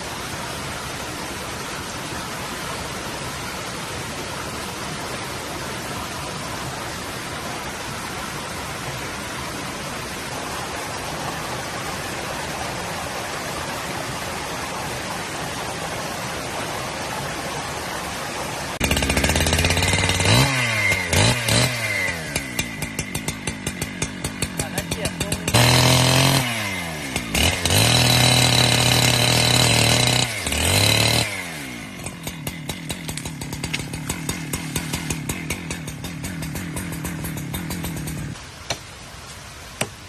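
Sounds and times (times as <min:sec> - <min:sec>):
chainsaw engine revving: 0:18.8 - 0:38.4.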